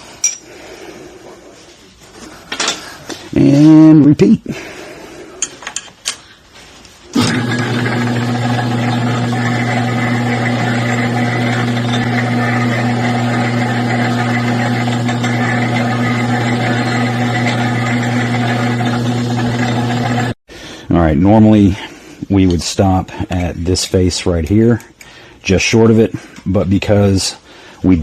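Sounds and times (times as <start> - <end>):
electric motor hum: 7.2 - 20.4.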